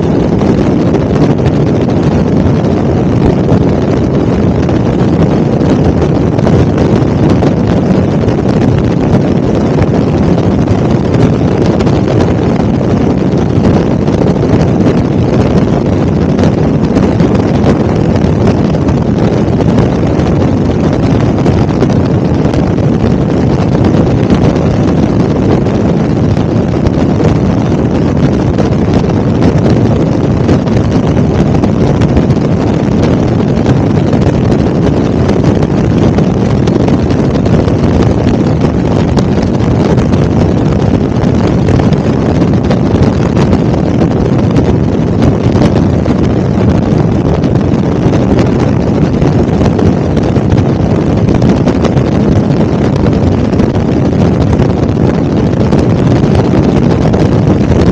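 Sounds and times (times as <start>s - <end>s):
helicopter flying: 0.0s - 43.4s
wind buffeting microphone: 0.0s - 57.9s.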